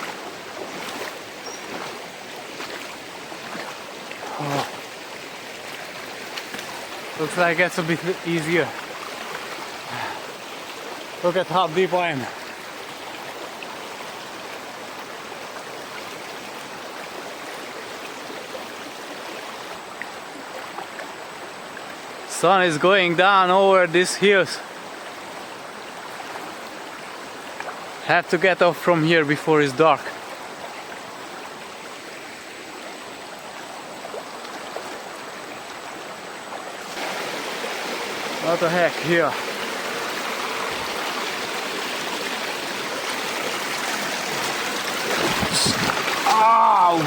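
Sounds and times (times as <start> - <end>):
river rushing over stones: 0.0 - 47.0
river rushing over rocks: 34.8 - 47.0.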